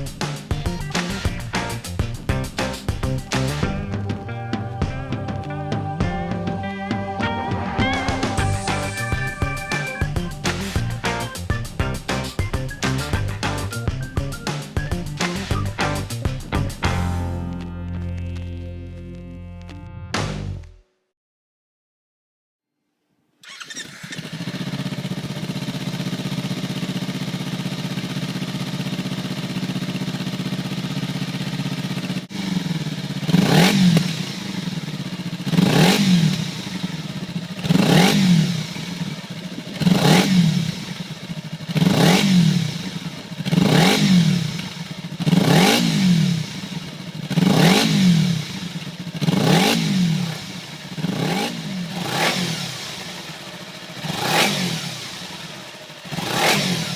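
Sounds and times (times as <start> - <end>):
motorcycle engine idling and revving: 0.0 - 17.6, 23.4 - 56.9.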